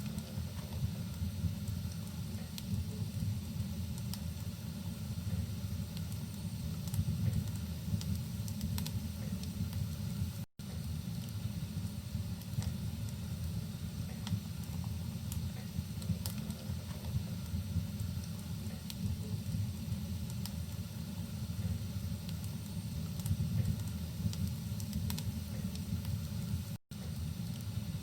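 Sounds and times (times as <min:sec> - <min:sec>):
wood fire crackling and popping: 0:00.0 - 0:28.0
rain: 0:10.8 - 0:28.0.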